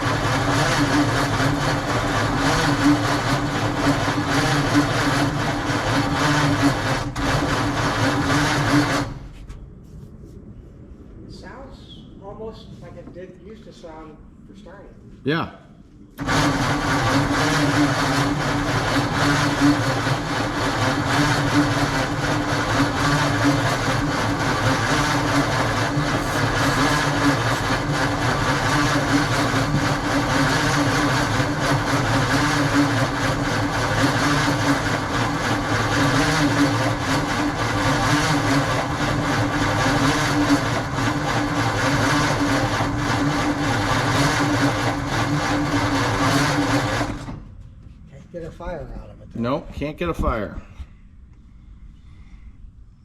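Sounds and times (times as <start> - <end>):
truck engine cranking on starter: 16.2 - 47.5.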